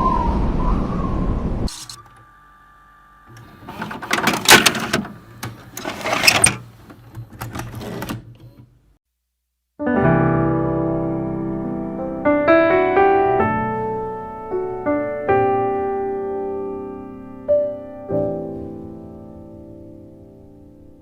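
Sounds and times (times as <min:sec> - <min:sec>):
piano chords: 0:09.8 - 0:21.0.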